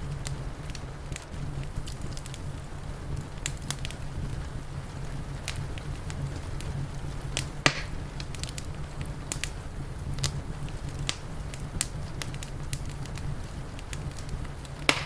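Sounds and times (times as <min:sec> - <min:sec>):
low rumble of fire: 0:00.0 - 0:15.0
wood fire crackling and popping: 0:00.0 - 0:15.0.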